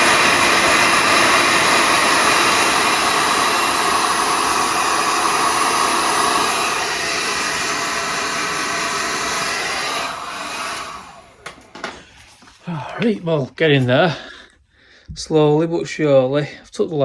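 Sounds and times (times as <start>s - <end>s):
heat gun blowing: 0.0s - 12.5s.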